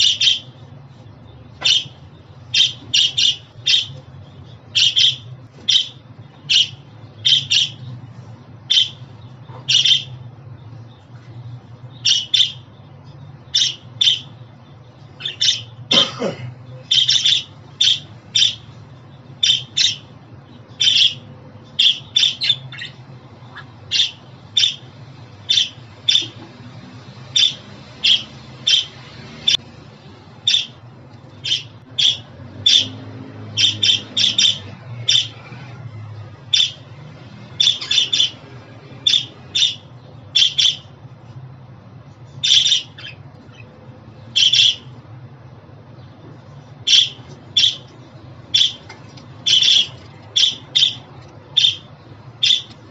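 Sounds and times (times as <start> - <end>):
budgerigar chirping: 0.0 - 7.9, 8.7 - 10.3, 11.9 - 12.8, 13.4 - 16.0, 16.8 - 24.9, 25.5 - 26.4, 27.3 - 29.6, 30.4 - 30.8, 31.4 - 35.5, 36.5 - 41.0, 42.3 - 44.9, 46.8 - 52.9.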